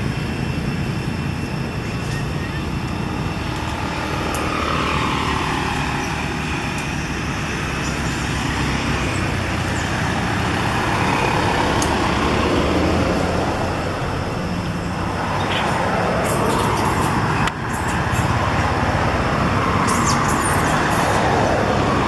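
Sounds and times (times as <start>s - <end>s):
road noise rushing: 0.0s - 22.0s
vehicle engine hum: 0.0s - 22.0s.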